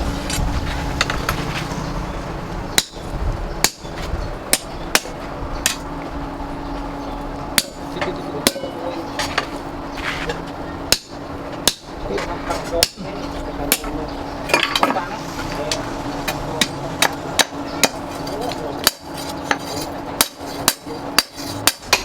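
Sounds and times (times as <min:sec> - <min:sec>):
steady low hum: 0:00.0 - 0:22.0
hammer striking steel: 0:02.8 - 0:03.9, 0:04.5 - 0:05.9, 0:07.5 - 0:08.9, 0:10.9 - 0:12.0, 0:15.7 - 0:22.0.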